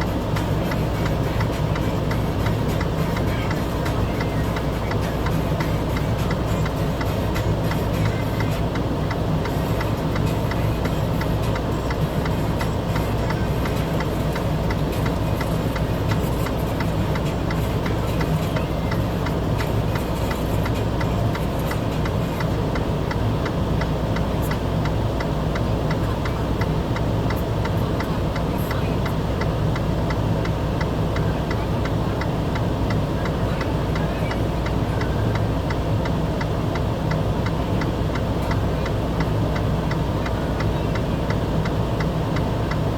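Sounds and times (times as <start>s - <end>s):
vehicle engine running: 0.0s - 42.9s.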